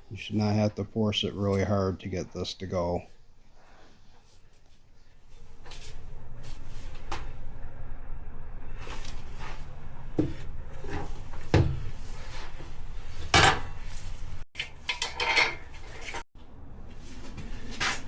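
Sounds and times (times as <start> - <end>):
metal tools clanking on wheel rim: 14.6 - 16.2.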